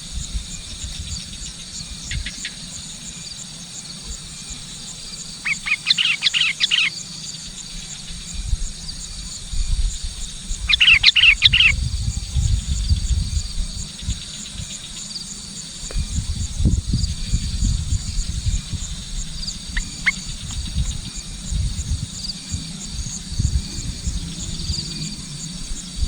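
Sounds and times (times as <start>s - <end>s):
high insect buzz: 0.0s - 26.0s
bird chirping: 5.4s - 8.0s, 10.6s - 12.1s, 16.7s - 21.6s.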